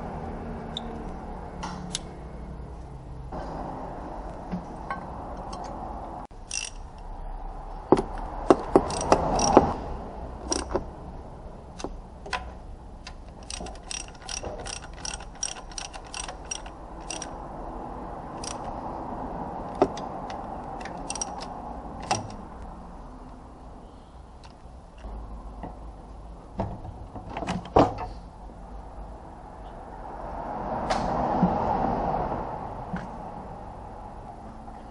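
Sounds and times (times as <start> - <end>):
hand tools clicking on metal: 4.9 - 7.1, 8.0 - 9.7, 10.4 - 10.9, 11.7 - 17.5, 18.4 - 18.8, 19.7 - 22.4.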